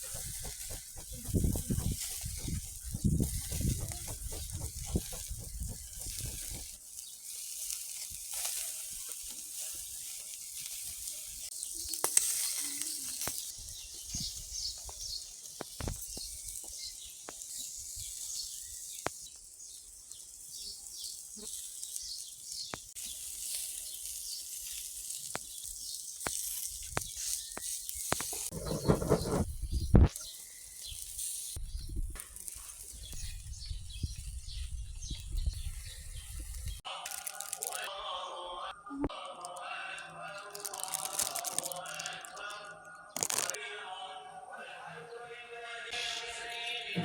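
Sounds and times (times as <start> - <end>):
sharp crackles and pops: 0.0 - 37.9, 40.5 - 42.5, 43.2 - 43.6
meat sizzling on a grill: 5.8 - 29.0, 30.1 - 34.7.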